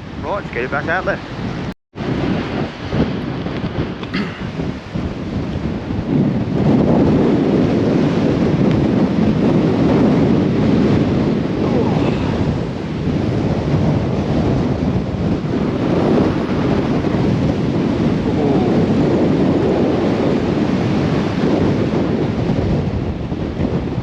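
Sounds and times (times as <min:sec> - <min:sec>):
strong wind blowing across microphone: 0:00.0 - 0:24.0.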